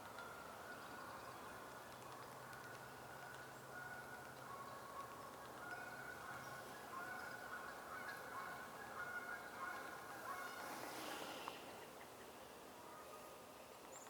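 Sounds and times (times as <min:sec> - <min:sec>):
nasal honking bird calls: 0:08.0 - 0:10.8.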